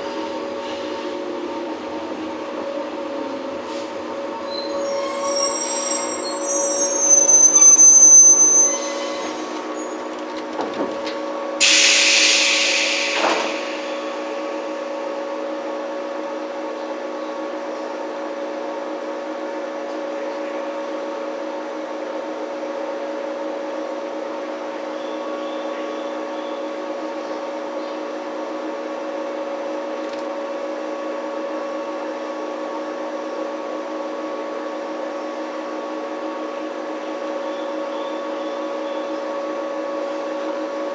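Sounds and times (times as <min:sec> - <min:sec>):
wheel and brake squeal: 0:04.4 - 0:10.8
air hiss: 0:11.6 - 0:14.8.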